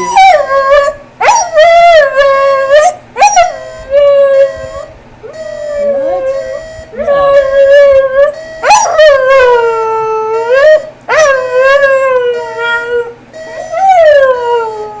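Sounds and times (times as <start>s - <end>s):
alarm clock beeping: 4.5s - 7.5s, 8.3s - 9.2s, 13.3s - 14.2s.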